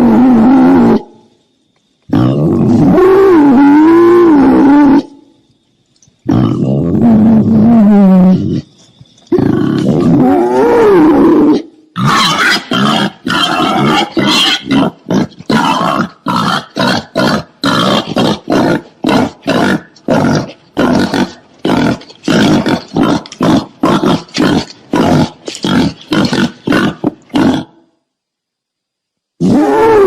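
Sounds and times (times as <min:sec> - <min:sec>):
wild boar calling: 0:09.3 - 0:27.8
wild boar grunting: 0:09.3 - 0:27.8.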